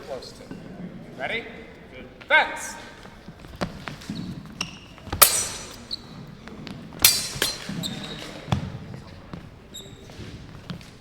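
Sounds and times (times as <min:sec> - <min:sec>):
swords clashing: 0:05.2 - 0:06.0, 0:07.0 - 0:08.2.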